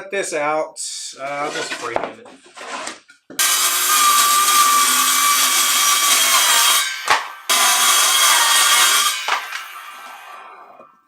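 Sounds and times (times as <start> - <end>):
power saw cutting wood: 3.4 - 10.9.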